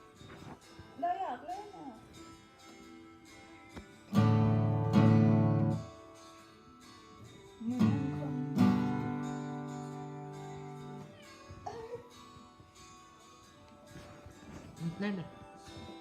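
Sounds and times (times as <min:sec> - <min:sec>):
guitar chords strummed: 0:00.0 - 0:16.0.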